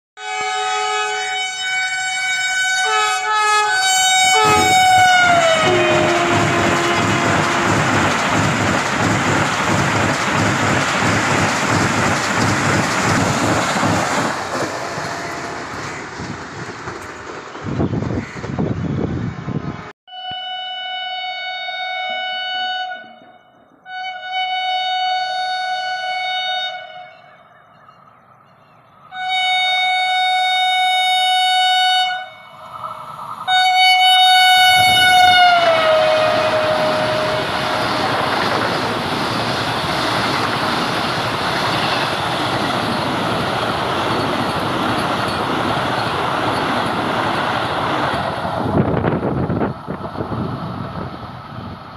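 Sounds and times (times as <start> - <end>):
train horn blasts: 0.2 - 8.2, 14.8 - 16.0, 20.1 - 27.6, 29.1 - 32.8, 33.4 - 38.3
train rushing past: 3.7 - 19.9, 32.1 - 51.9.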